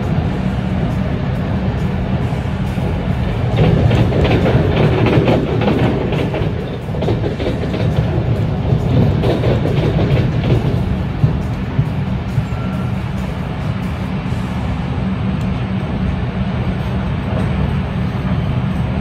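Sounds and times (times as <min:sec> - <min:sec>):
wheels clicking over track: 0:00.0 - 0:14.5
music playing: 0:00.0 - 0:19.0
train rumbling on rails: 0:00.0 - 0:19.0.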